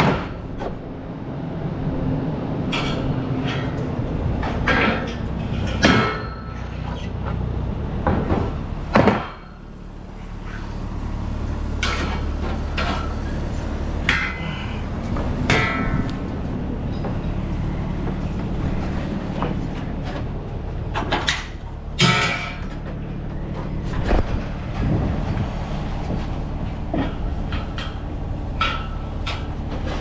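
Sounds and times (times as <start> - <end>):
engine idling: 0.0 - 30.0
metallic knocks and clanks: 2.7 - 7.4, 8.0 - 9.7, 11.8 - 13.4, 14.0 - 25.4, 26.1 - 30.0.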